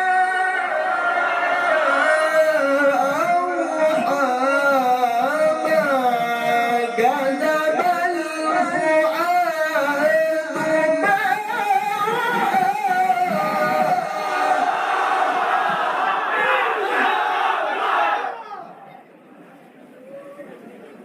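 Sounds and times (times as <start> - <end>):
man reciting melodically: 0.0 - 15.2
audience voices in acclaim: 14.3 - 19.0.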